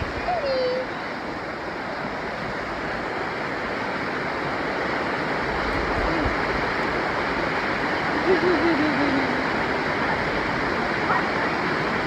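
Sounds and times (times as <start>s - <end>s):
river water flowing over rocks: 0.0s - 12.0s.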